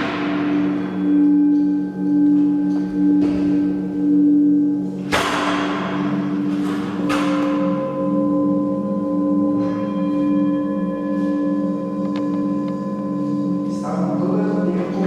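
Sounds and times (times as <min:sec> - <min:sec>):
bright crashing metal strikes: 0:00.0 - 0:01.2, 0:05.0 - 0:08.0
higher ringing tones: 0:00.0 - 0:15.0
low humming metal tones: 0:00.0 - 0:15.0.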